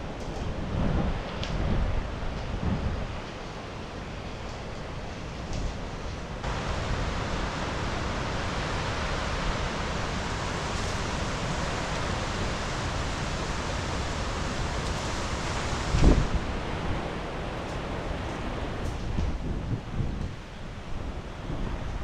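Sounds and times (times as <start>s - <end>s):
wind gust buffeting microphone: 0.0s - 4.5s, 5.4s - 22.0s
rain: 0.0s - 22.0s
storm wind: 0.0s - 22.0s.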